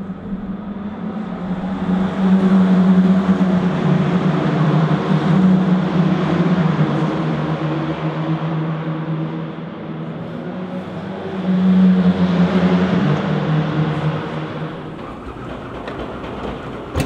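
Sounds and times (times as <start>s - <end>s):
racing engine at low revs: 0.0s - 14.9s.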